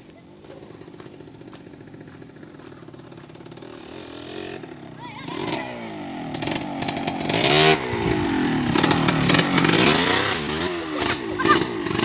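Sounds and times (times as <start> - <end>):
chainsaw engine revving: 3.4 - 12.0.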